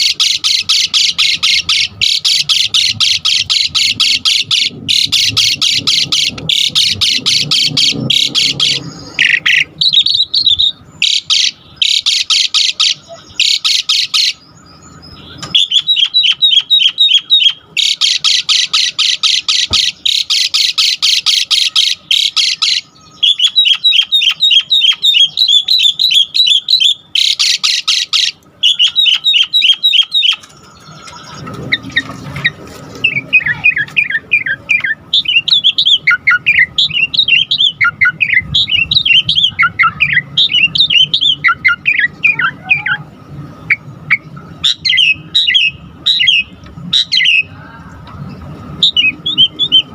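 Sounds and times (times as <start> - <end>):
starling calling: 0.0 - 49.9.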